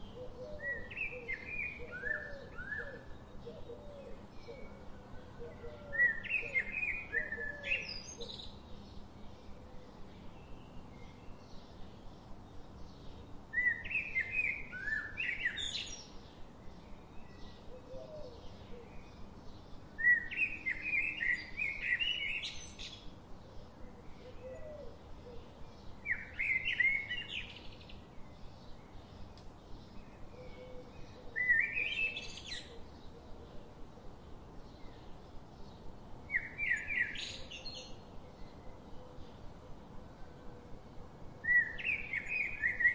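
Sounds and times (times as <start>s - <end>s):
songbird chirping: 0.0s - 42.9s.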